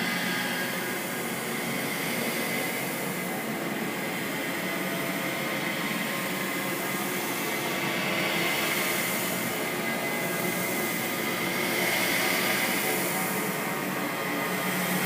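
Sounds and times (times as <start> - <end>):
eerie noisy drone: 0.0 - 15.0.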